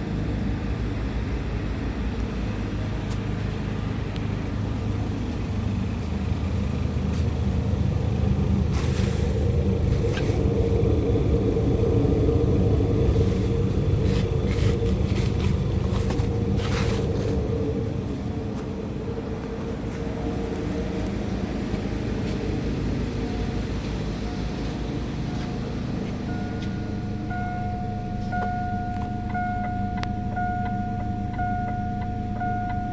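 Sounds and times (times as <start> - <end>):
car engine running: 0.0 - 32.9
steady electronic tone: 24.2 - 32.9.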